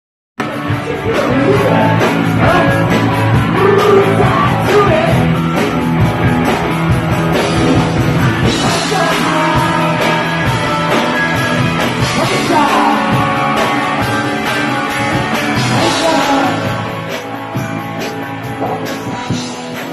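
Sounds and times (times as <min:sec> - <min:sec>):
punk rock band playing live: 0:00.4 - 0:19.9
steady drum beat: 0:00.4 - 0:19.9
person singing: 0:00.6 - 0:05.6, 0:08.4 - 0:17.3.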